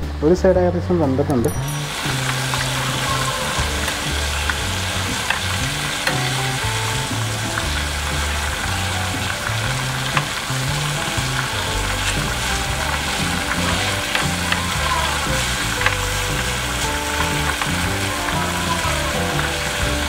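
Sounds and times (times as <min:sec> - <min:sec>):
chicken sizzling in hot oil: 0:01.7 - 0:20.0.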